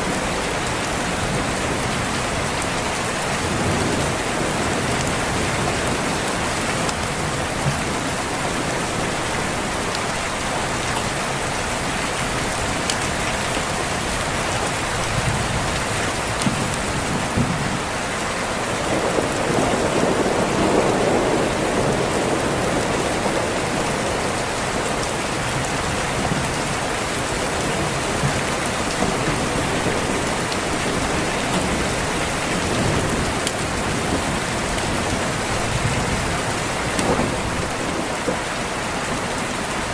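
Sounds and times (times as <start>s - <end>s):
heavy rain: 0.0s - 39.9s
thunder rumbling: 14.9s - 17.9s, 18.6s - 38.5s.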